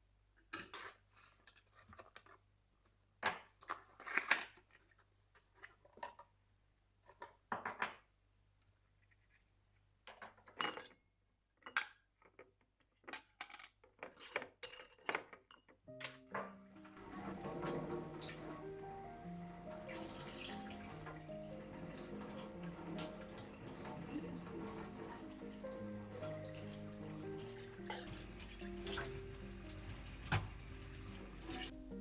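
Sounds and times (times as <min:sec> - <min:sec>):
dishes and cutlery clinking: 0:10.2 - 0:11.0, 0:13.1 - 0:18.7, 0:19.8 - 0:31.7.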